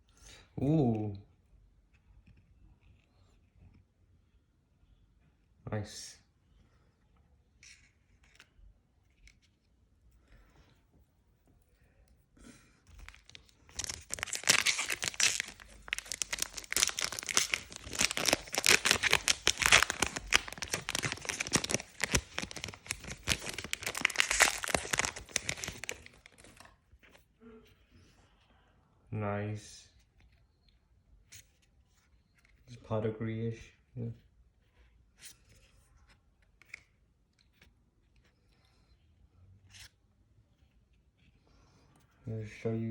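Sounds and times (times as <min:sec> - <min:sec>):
plastic wrapper crinkling: 0:12.9 - 0:26.8.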